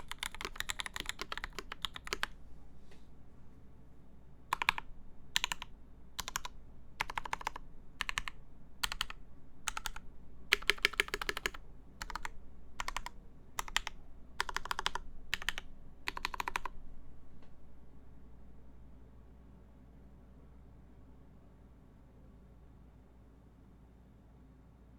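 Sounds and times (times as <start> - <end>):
mechanical keyboard typing: 0.0 - 2.4, 4.5 - 16.8.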